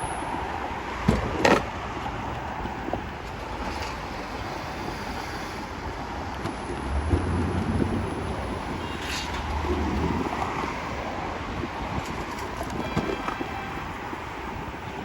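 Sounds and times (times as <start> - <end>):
road and traffic noise: 0.0 - 15.0
low rumble: 6.6 - 10.6.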